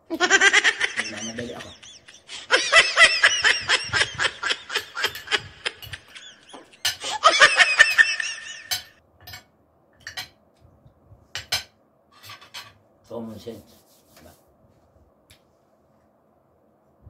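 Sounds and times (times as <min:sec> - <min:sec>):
man laughing: 0:00.1 - 0:08.9
cutlery clicking on plate: 0:05.0 - 0:07.0, 0:08.7 - 0:10.4, 0:11.4 - 0:12.8.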